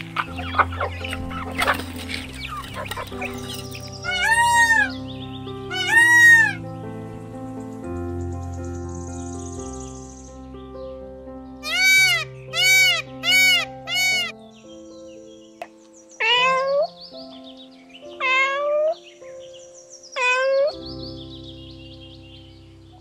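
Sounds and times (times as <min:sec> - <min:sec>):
soft background music: 0:00.0 - 0:23.0
peacock call: 0:02.5 - 0:05.0, 0:05.7 - 0:06.6, 0:11.6 - 0:14.4, 0:20.2 - 0:20.8
cat meowing: 0:04.1 - 0:04.9, 0:05.7 - 0:06.6, 0:16.2 - 0:16.9, 0:18.1 - 0:19.0, 0:20.2 - 0:20.8.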